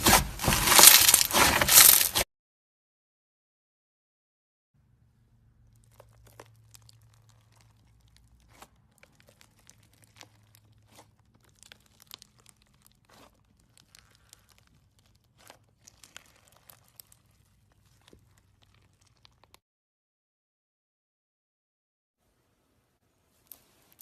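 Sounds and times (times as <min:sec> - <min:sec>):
slime crackling and popping: 0:00.0 - 0:02.2, 0:05.7 - 0:19.6.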